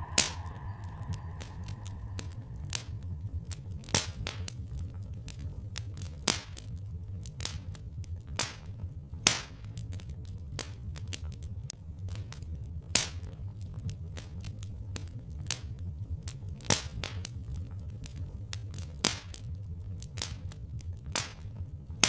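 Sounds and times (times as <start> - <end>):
low rumble: 0.0 - 4.1
wood fire crackling: 0.0 - 22.0.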